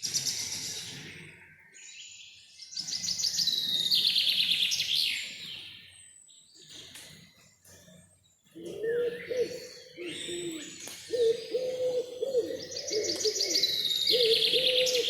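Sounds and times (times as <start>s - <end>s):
bird hooting: 8.6s - 15.0s.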